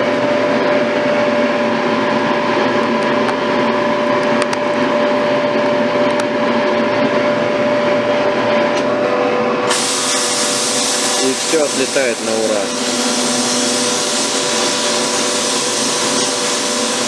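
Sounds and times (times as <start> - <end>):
constant hum: 0.0 - 9.7
sandblasting hiss: 9.7 - 17.0.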